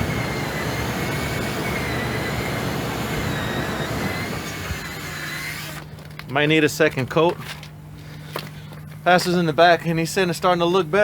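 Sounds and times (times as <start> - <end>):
drill polishing plastic lens: 0.0 - 5.9.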